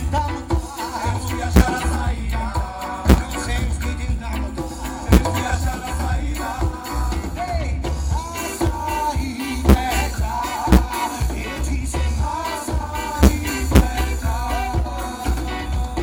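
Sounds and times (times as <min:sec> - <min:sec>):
person singing: 0:00.0 - 0:16.0
reggae band playing: 0:00.0 - 0:16.0
heavy bass line: 0:01.2 - 0:02.5, 0:03.1 - 0:06.4, 0:09.6 - 0:12.1, 0:13.1 - 0:14.9
drum hits: 0:01.6 - 0:02.0, 0:03.1 - 0:03.4, 0:05.1 - 0:05.8, 0:09.7 - 0:11.1, 0:13.2 - 0:14.2.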